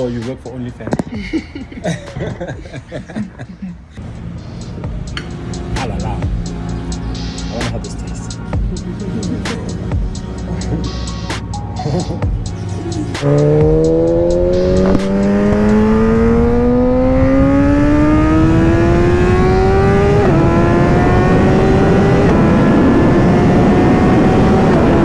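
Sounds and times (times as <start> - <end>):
motorcycle engine accelerating hard: 13.1 - 25.0.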